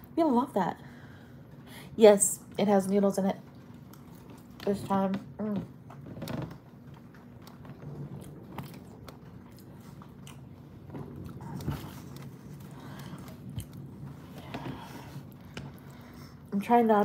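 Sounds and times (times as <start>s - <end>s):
person chewing food: 3.6s - 4.6s, 5.9s - 16.5s.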